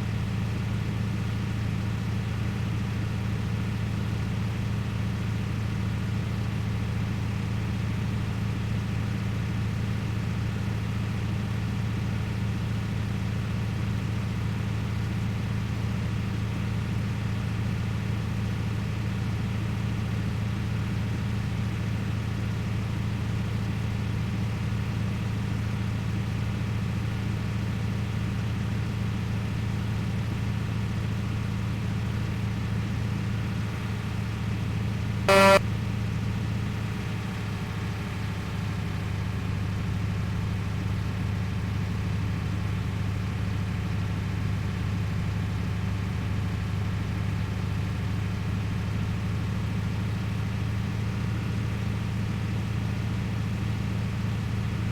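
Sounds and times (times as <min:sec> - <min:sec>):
truck engine running: 0:33.4 - 0:35.6
truck horn honk: 0:35.3 - 0:35.6.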